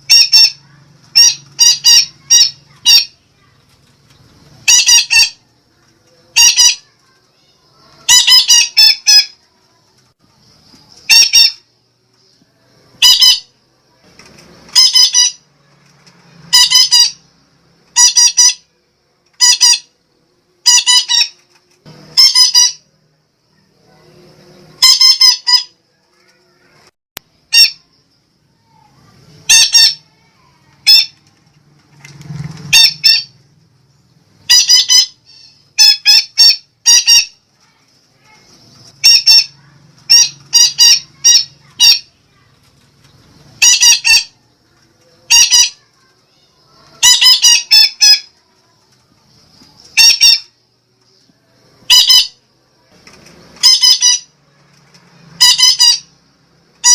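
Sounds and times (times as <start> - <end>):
parakeet squawking: 0.0 - 3.5, 4.6 - 5.5, 6.3 - 7.0, 8.0 - 9.4, 11.0 - 11.7, 13.0 - 13.5, 14.7 - 15.4, 16.5 - 17.3, 17.9 - 18.7, 19.4 - 20.0, 20.6 - 21.4, 22.1 - 22.9, 24.8 - 25.8, 27.5 - 27.9, 29.4 - 31.2, 32.7 - 33.4, 34.4 - 37.4, 38.3 - 42.2, 43.6 - 44.4, 45.2 - 45.9, 46.6 - 48.3, 49.9 - 50.6, 51.9 - 52.4, 53.6 - 54.3, 55.4 - 56.2.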